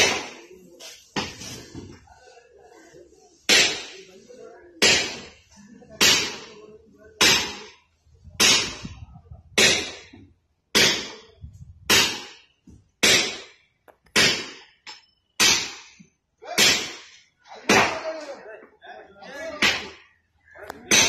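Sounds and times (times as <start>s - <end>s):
hammer striking steel: 4.8s - 5.3s.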